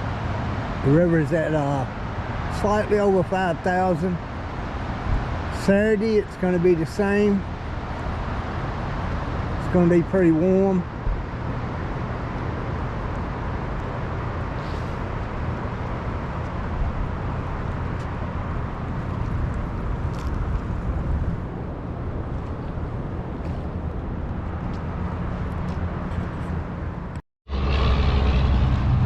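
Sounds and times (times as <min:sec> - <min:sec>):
low engine hum: 0:00.0 - 0:29.0
rushing noise: 0:27.5 - 0:29.0.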